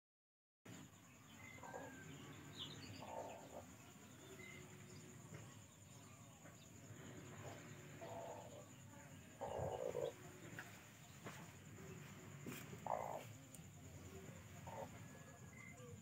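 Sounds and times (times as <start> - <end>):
birds calling: 0.9 - 13.4.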